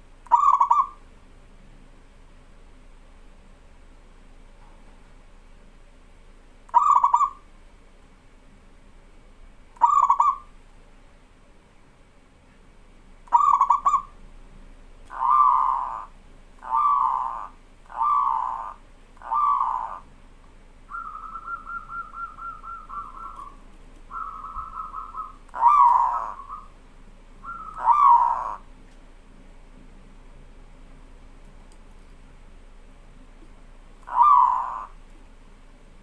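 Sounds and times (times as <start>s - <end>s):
dove cooing: 0.3s - 1.0s, 6.7s - 7.4s, 9.8s - 10.5s, 13.3s - 14.2s, 15.1s - 20.1s, 20.9s - 26.8s, 27.4s - 28.7s, 34.0s - 35.0s
dove rattling trills: 6.8s - 7.4s, 9.8s - 10.5s, 13.3s - 14.2s, 15.1s - 20.1s, 20.8s - 28.7s, 34.0s - 35.0s.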